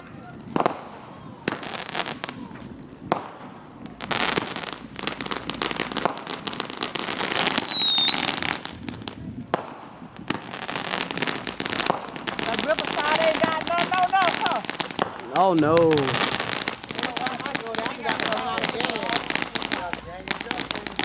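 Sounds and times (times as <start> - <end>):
fireworks bangs: 0.0 - 21.0
fireworks crackling: 0.0 - 21.0
high falling whistle: 7.5 - 8.3.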